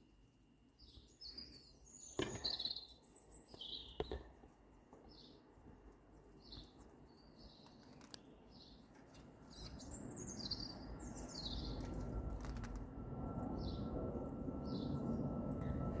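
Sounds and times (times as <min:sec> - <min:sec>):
birds chirping: 0:00.8 - 0:12.1
downward-sweeping bird calls: 0:09.5 - 0:11.9.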